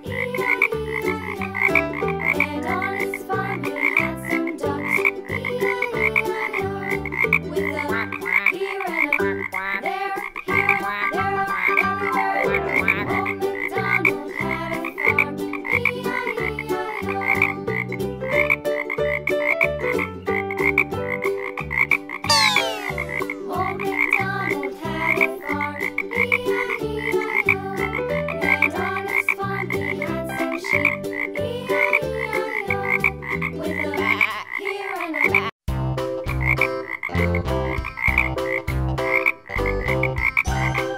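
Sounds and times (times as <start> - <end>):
frog croaking: 0.1 - 2.4, 3.8 - 4.0, 8.0 - 11.8, 12.7 - 13.7, 20.7 - 23.2, 38.0 - 40.4.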